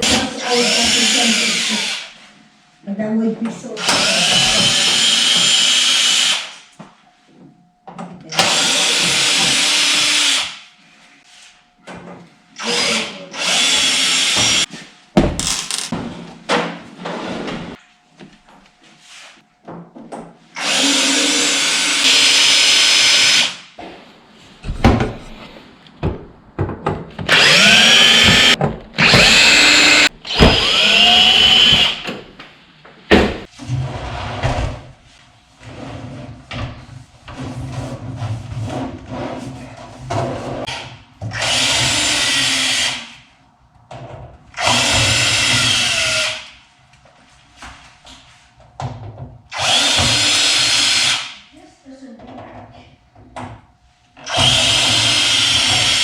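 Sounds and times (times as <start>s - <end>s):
power drill running: 0.0s - 2.2s, 3.8s - 6.6s, 8.4s - 10.6s, 12.6s - 14.7s, 20.6s - 23.6s, 27.3s - 32.2s, 41.3s - 43.1s, 44.6s - 46.5s, 49.5s - 51.4s, 54.2s - 56.0s.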